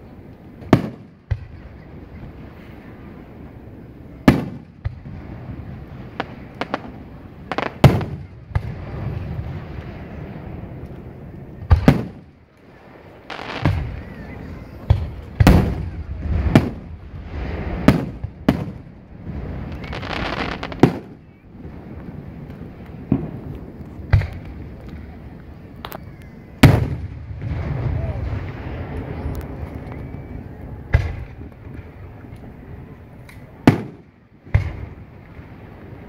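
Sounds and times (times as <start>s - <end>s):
fireworks booming: 0.2s - 36.0s.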